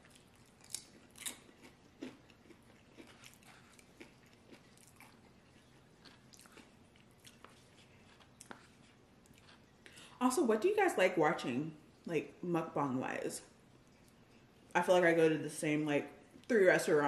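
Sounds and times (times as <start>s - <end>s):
close-up chewing: 0.0s - 10.2s.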